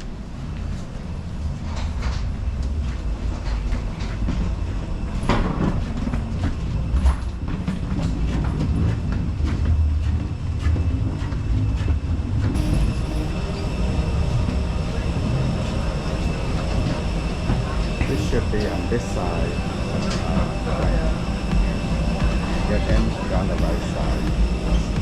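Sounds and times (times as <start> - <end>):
train rumbling on rails: 0.0 - 25.0
high wheel squeal: 12.5 - 25.0.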